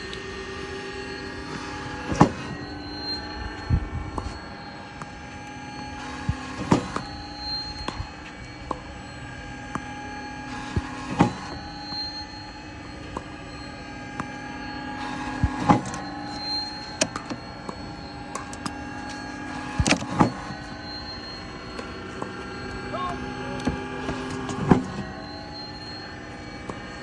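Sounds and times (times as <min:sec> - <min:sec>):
ball machine motor hum: 0:00.0 - 0:27.0.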